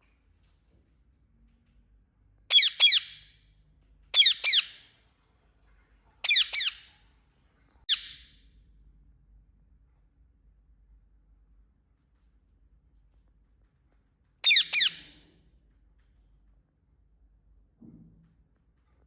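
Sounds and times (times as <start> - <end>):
parrot chirping: 2.5 - 3.3, 4.1 - 4.8, 6.2 - 6.9, 7.9 - 8.3, 14.4 - 15.2.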